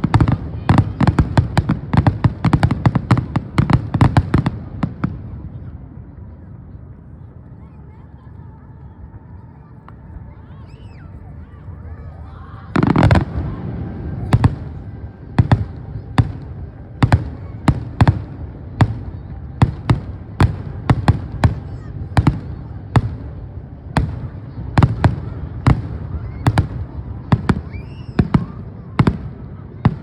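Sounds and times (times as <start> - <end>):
steady low rumble: 0.0 - 27.7
fireworks bursting: 12.7 - 30.0.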